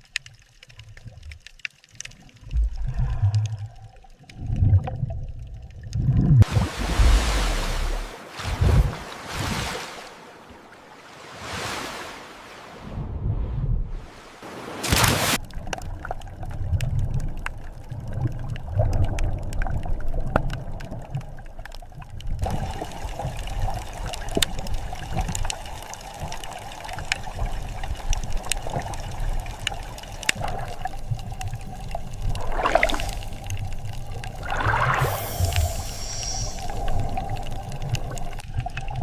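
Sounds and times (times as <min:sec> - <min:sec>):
sharp underwater clicks: 0:00.0 - 0:06.4, 0:14.8 - 0:39.0
underwater rumble: 0:00.0 - 0:09.2, 0:12.7 - 0:14.3, 0:15.4 - 0:39.0
gurgling bubbles: 0:02.1 - 0:09.0, 0:15.4 - 0:39.0.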